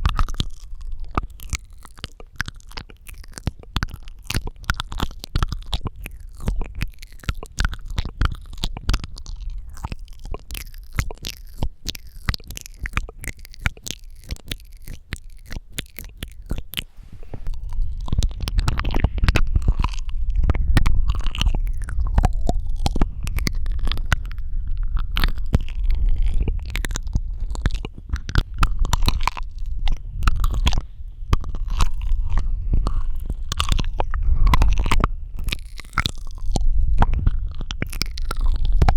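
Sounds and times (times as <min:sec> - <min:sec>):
wet mouth clicks and smacks: 0:00.0 - 0:38.9
low rumble: 0:16.8 - 0:38.9.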